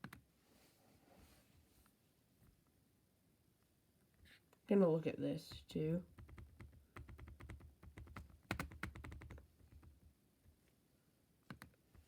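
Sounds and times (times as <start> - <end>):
keyboard typing: 5.5 - 10.0, 11.5 - 12.0.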